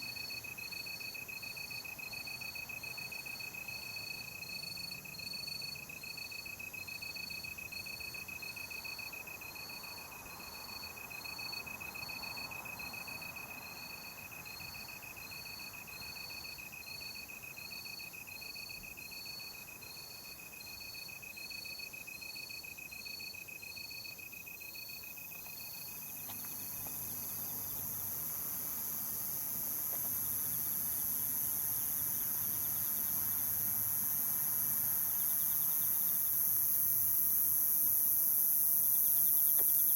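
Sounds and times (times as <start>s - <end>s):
insect trill: 0.0s - 39.9s
high-pitched insect hiss: 24.8s - 39.9s.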